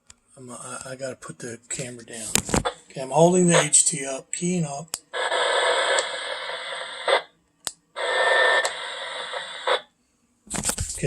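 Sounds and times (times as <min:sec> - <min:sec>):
radio static hiss: 0:01.8 - 0:07.3, 0:08.0 - 0:09.9, 0:10.5 - 0:11.0.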